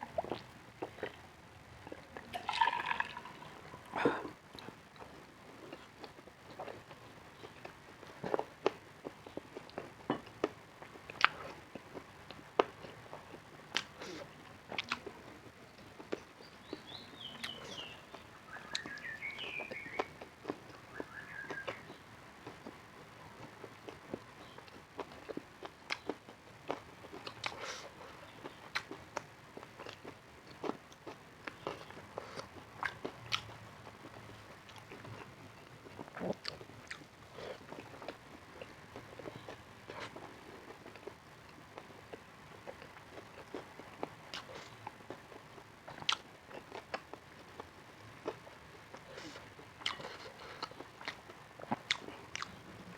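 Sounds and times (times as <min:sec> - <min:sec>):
crunching and chewing: 0:00.0 - 0:52.9
person biting and chewing food: 0:49.1 - 0:52.6.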